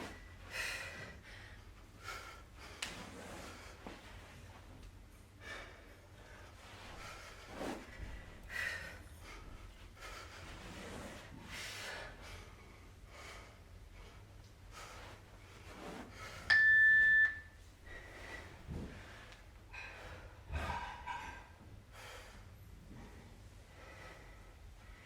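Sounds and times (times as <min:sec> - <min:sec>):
electronic timer beep: 0:16.5 - 0:17.6.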